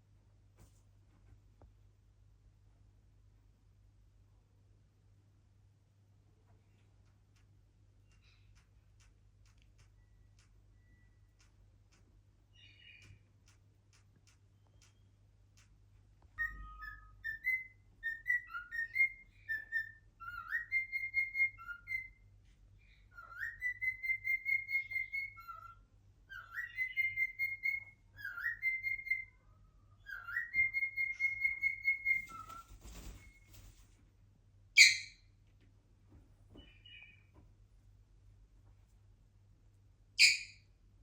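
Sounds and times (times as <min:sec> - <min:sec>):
cockatiel whistling: 0:16.4 - 0:22.2, 0:23.1 - 0:29.4, 0:30.0 - 0:33.3.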